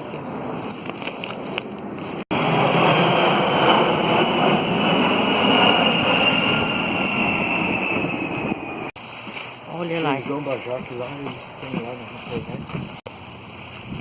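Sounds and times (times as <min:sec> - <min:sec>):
vehicle noise: 0:00.0 - 0:14.0
high whine falling in pitch: 0:02.3 - 0:08.9.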